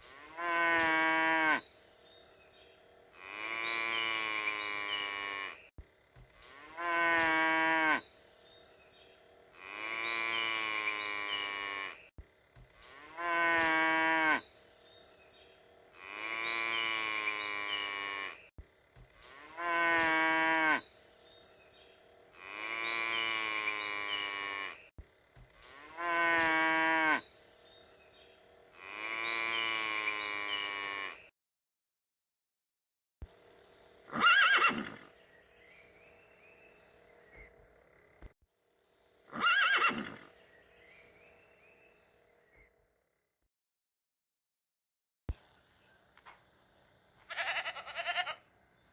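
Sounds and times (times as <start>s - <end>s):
cattle mooing: 0.0s - 1.6s, 3.2s - 5.7s, 12.8s - 14.4s, 19.2s - 20.8s, 25.6s - 27.2s, 28.8s - 31.3s.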